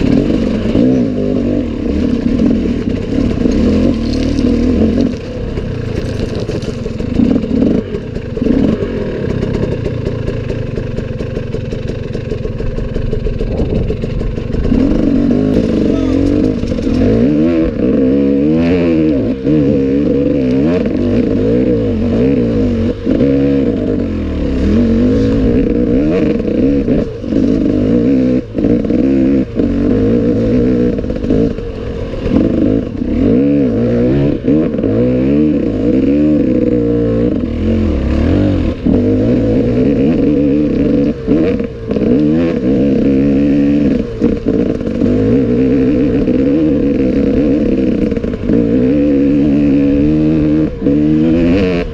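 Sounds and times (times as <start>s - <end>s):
motorcycle clattering: 0.0s - 17.9s
motorcycle engine revving: 0.0s - 51.9s.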